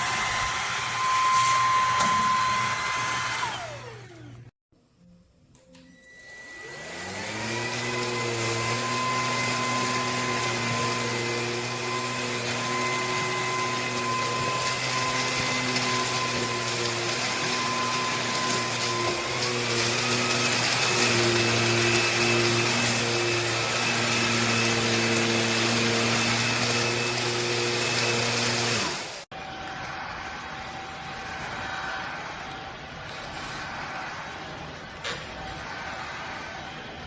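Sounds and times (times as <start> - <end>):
vacuum motor whining: 0.0 - 4.5, 5.8 - 29.3.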